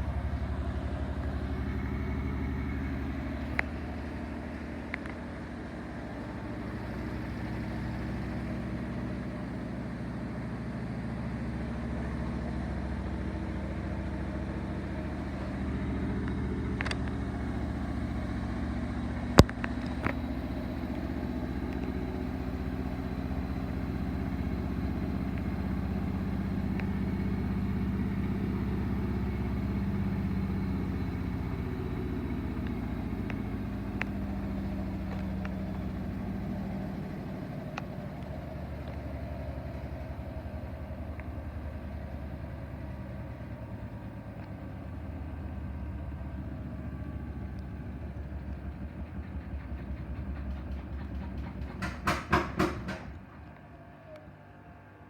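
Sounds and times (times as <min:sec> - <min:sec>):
washing machine spinning: 0:47.0 - 0:54.0.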